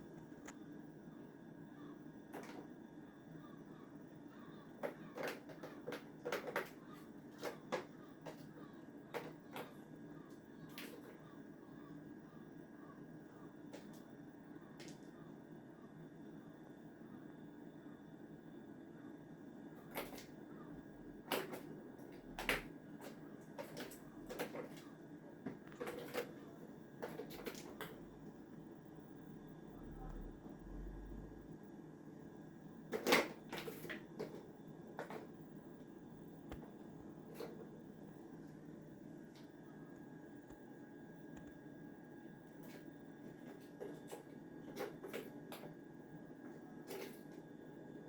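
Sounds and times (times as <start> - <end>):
faint room hum: 0.0 - 48.0
kitten tapping and clattering: 4.8 - 8.5
kitten playing clicks and knocks: 4.8 - 9.8, 21.2 - 24.9, 25.5 - 28.0.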